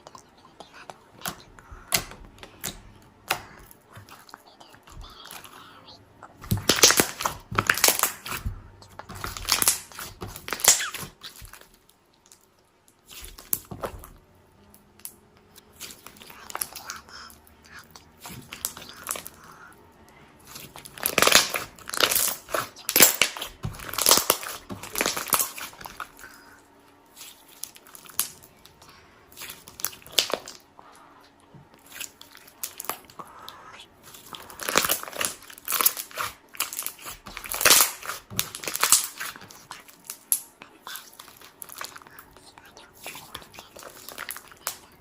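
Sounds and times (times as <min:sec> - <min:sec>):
crisp crunching and crinkling: 0:06.5 - 0:14.0, 0:20.4 - 0:28.4, 0:34.0 - 0:45.0.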